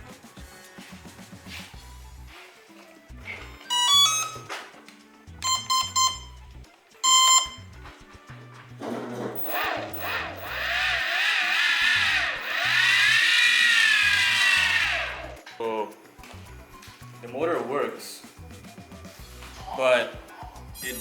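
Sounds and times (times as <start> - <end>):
electronic beeps: 3.6 - 4.5, 5.4 - 6.4, 7.0 - 7.8, 9.4 - 10.6
speed controller start-up tones: 3.7 - 4.5, 5.4 - 6.4, 7.0 - 7.8, 9.4 - 15.4
motor and propeller whirring: 9.4 - 15.4.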